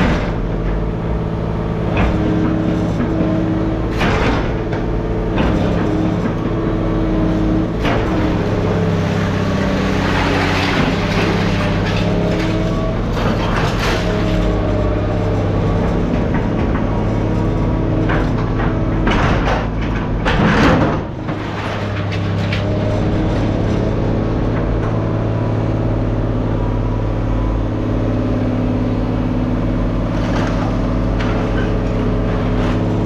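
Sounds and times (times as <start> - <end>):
knocks and clatters: 0.0 - 1.0, 1.8 - 6.9, 7.6 - 25.1, 30.1 - 33.0
heavy machinery engine running: 0.0 - 33.0.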